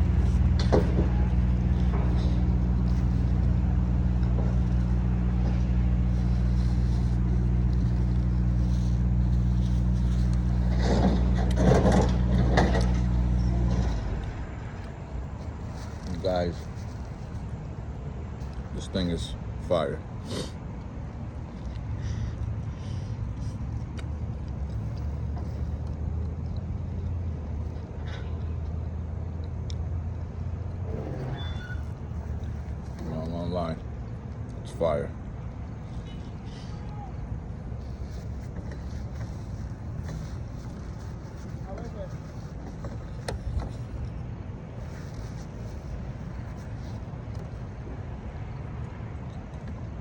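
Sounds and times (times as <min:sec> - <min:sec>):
low mechanical hum: 0:00.0 - 0:50.0
vehicle engine idling: 0:00.0 - 0:50.0
voices: 0:35.8 - 0:43.4.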